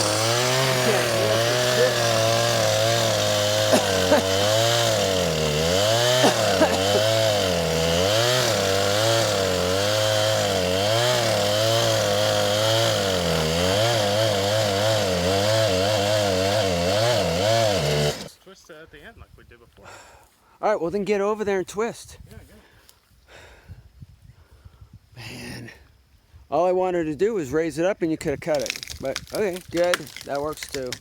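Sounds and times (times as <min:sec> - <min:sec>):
chainsaw cutting wood: 0:00.0 - 0:18.4, 0:28.6 - 0:31.0.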